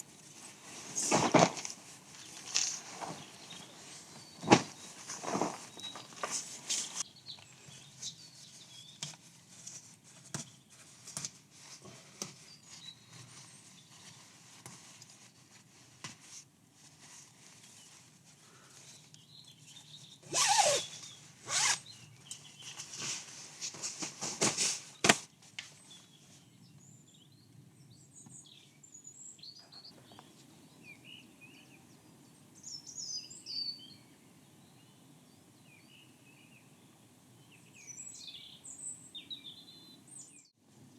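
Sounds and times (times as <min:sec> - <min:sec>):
rustling and clicking handling: 0:00.0 - 0:08.2
birds chirping: 0:02.2 - 0:09.0.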